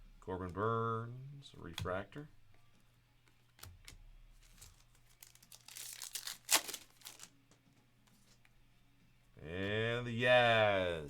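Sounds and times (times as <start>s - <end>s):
foil wrapper crinkling: 4.4s - 7.4s
foil wrapper tearing: 4.4s - 7.4s.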